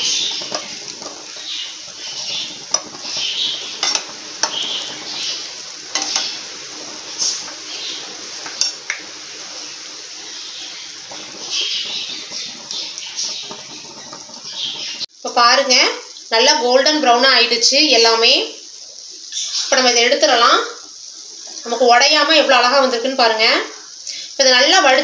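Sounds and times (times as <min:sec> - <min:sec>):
steel spoon knocking pan: 0:00.0 - 0:09.1, 0:11.0 - 0:15.0
dough balls sizzling in oil: 0:00.0 - 0:25.0.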